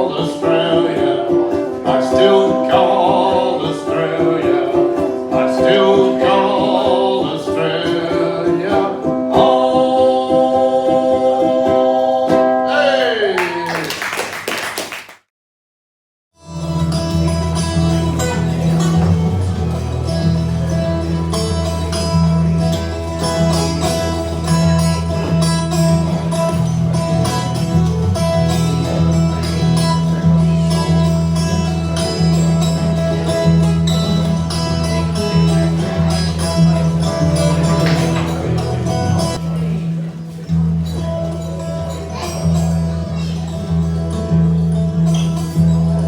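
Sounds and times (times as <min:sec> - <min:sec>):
guitar: 0:00.0 - 0:14.9, 0:16.4 - 0:46.0
bass line: 0:16.4 - 0:46.0.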